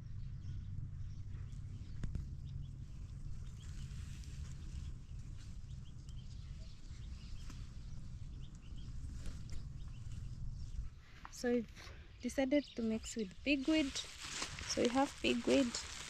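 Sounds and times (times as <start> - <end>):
low steady rumble: 0.0 - 16.0
small birds chirping: 0.0 - 16.0.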